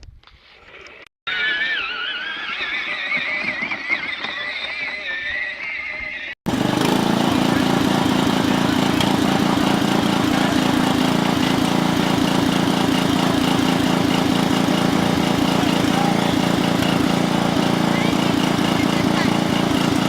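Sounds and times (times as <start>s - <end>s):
tractor engine running: 6.5s - 20.0s.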